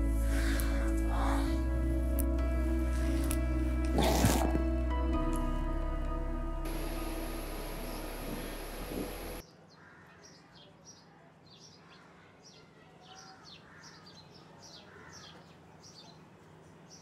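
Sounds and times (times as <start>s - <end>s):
music: 0.0s - 9.4s
low steady hum: 4.5s - 9.4s
small birds chirping: 6.7s - 17.0s.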